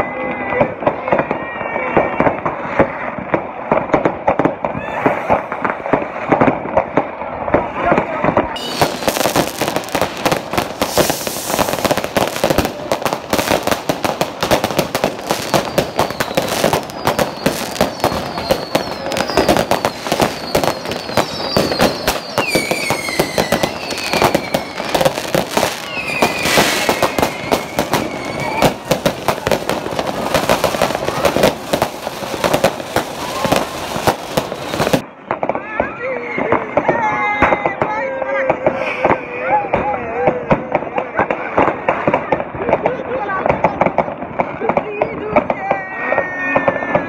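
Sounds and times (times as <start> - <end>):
fireworks bangs and crackles: 0.0 - 47.0
falling firework whistles: 8.6 - 35.0, 38.6 - 39.7.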